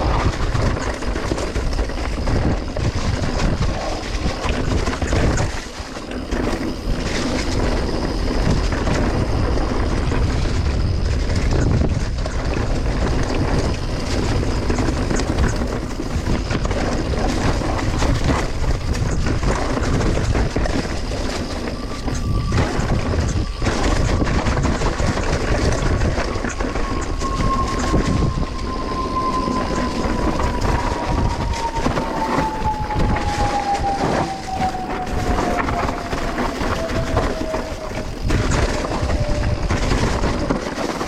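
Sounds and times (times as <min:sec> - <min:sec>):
bike and gear rattling: 0:00.0 - 0:41.0
bike tyres on dirt: 0:00.0 - 0:41.0
whining tone falling in pitch: 0:17.3 - 0:40.8.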